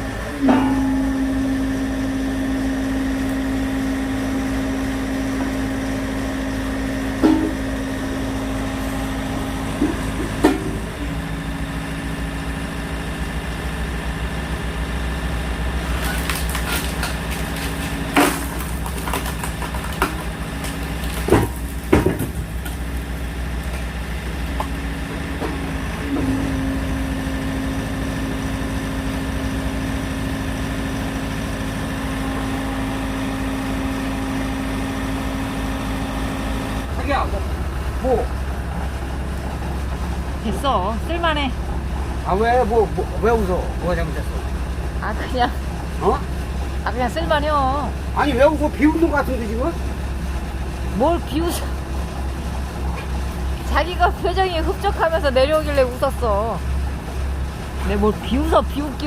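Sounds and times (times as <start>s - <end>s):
farm machine engine running: 0.0s - 59.0s
log splitting knocks: 15.8s - 26.4s.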